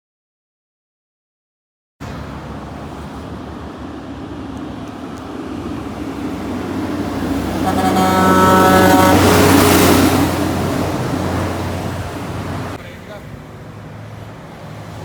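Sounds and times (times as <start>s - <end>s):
truck engine running: 2.0s - 15.0s
truck horn: 7.2s - 11.2s.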